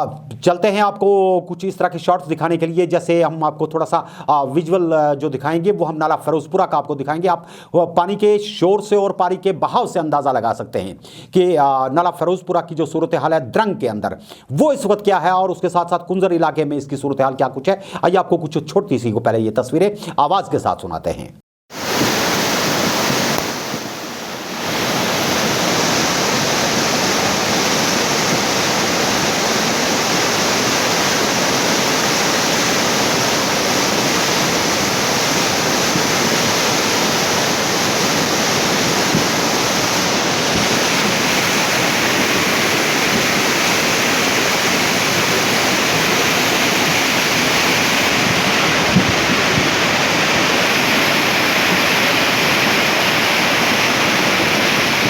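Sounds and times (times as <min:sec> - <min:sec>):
floodwater rushing with a roar: 0:21.7 - 0:55.0.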